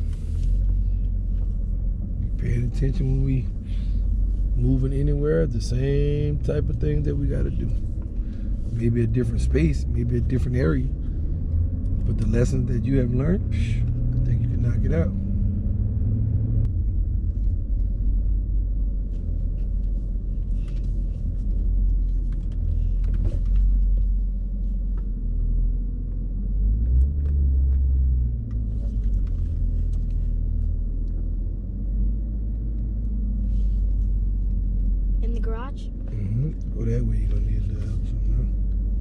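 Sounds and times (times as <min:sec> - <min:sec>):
car rumble from inside cabin: 0:00.0 - 0:39.0.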